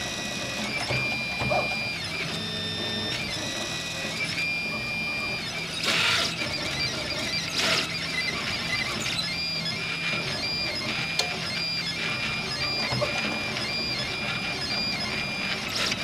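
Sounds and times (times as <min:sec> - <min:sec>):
stepper motors whining: 0:00.0 - 0:16.0.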